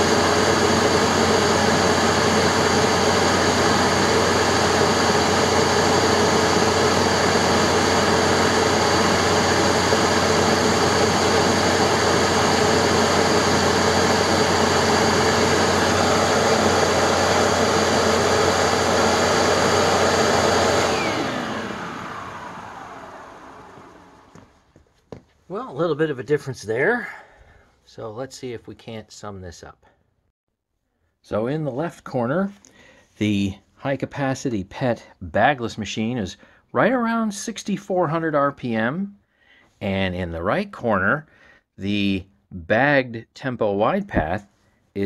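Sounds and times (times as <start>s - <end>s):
upright vacuum cleaner running: 0.0s - 24.6s.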